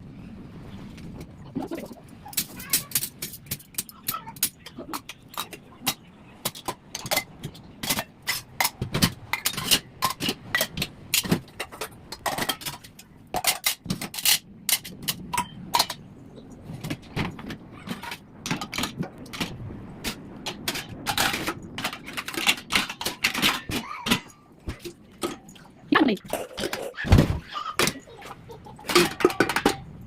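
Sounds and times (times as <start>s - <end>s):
utensils clattering in dishwasher racks: 2.3s - 16.0s, 20.5s - 30.0s.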